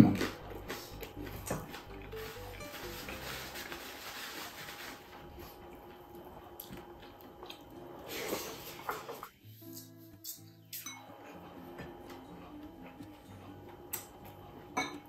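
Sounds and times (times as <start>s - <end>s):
person chewing with wet mouth sounds: 5.4s - 10.8s.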